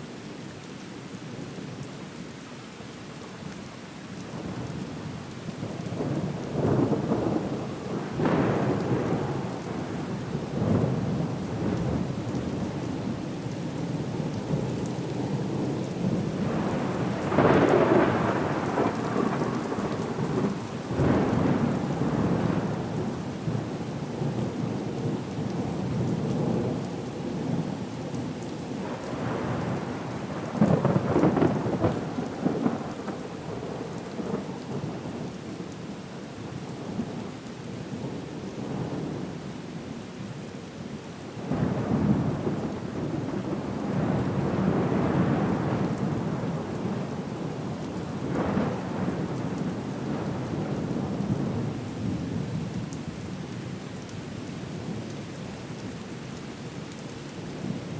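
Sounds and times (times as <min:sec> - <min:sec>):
heavy rain: 0:00.0 - 0:57.9
rolling thunder: 0:16.4 - 0:23.0, 0:28.8 - 0:33.6.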